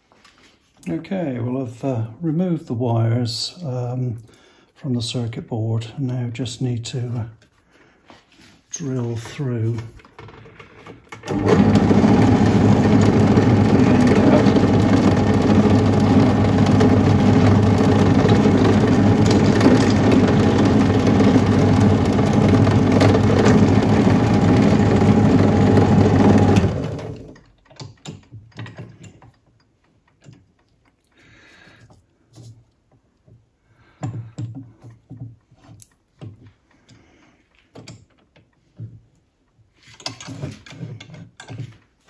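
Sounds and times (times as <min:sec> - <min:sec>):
electric drill boring through metal: 0:11.3 - 0:27.3.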